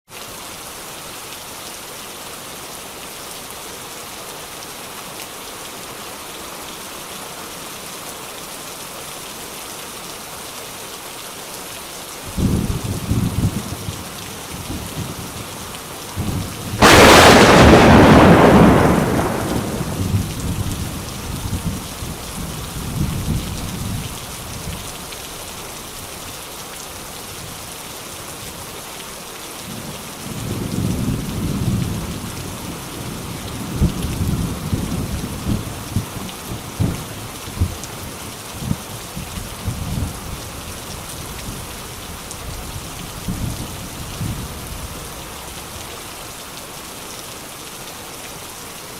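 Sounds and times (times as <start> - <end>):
steady rain: 0.1 - 48.9
thunderclap: 16.2 - 21.0
low thunder rumbles: 16.2 - 23.5.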